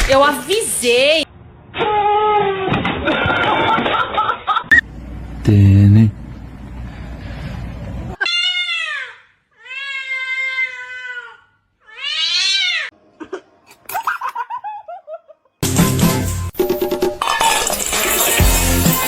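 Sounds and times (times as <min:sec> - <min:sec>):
cat meowing: 0:11.9 - 0:12.9.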